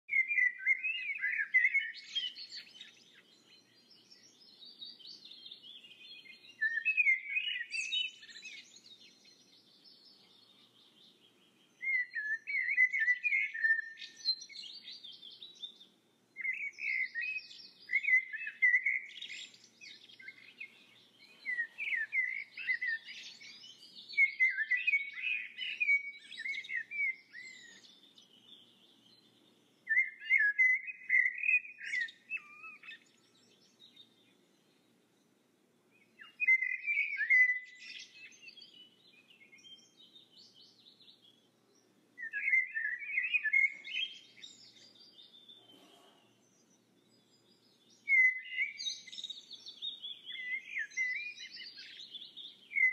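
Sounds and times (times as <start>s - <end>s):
songbird chirps and trills: 0.0s - 52.9s.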